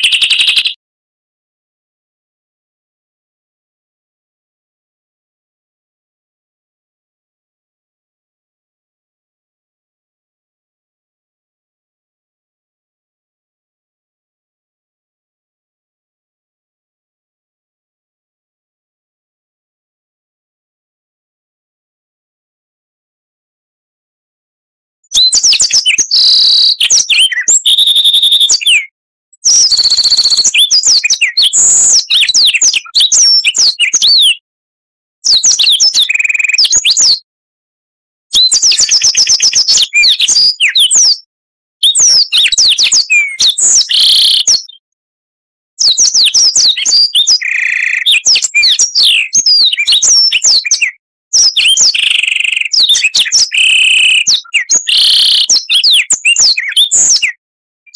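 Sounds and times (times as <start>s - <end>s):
bird singing whistles and chirps: 0.0s - 0.8s, 25.1s - 34.4s, 35.3s - 37.2s, 38.3s - 44.8s, 45.8s - 57.9s.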